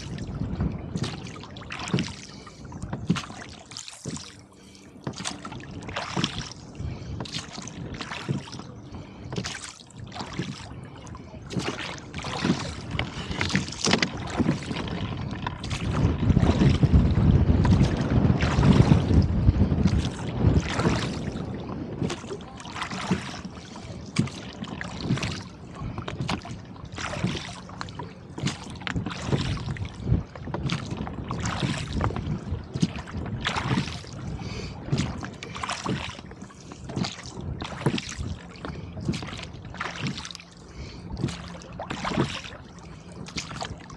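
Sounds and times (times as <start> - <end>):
wind gust buffeting microphone: 0.0 - 3.4, 5.0 - 43.9
water slapping against boat hull: 0.0 - 43.9.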